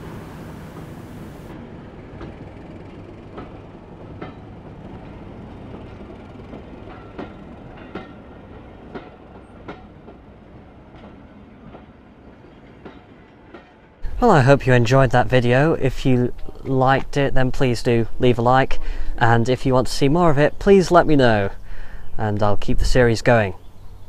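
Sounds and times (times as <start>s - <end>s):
train low rumble: 0.0s - 24.0s
wheels clicking over rail joints: 2.2s - 10.3s.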